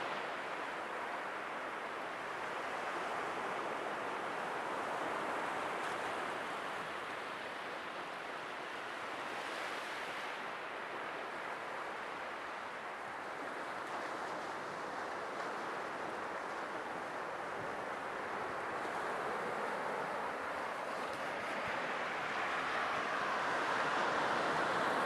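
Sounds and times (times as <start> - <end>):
sea waves washing: 17.2 - 25.0.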